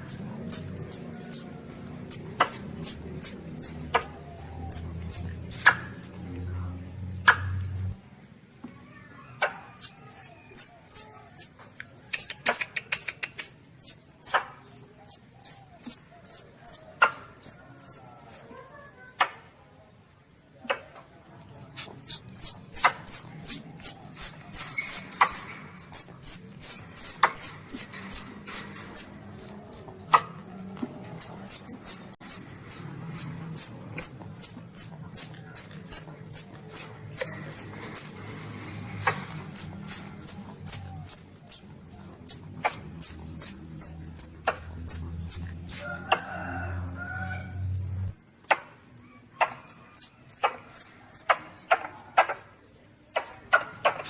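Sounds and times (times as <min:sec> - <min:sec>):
kitten high squeaks: 0:09.4 - 0:18.4, 0:21.8 - 0:25.4, 0:39.0 - 0:41.6.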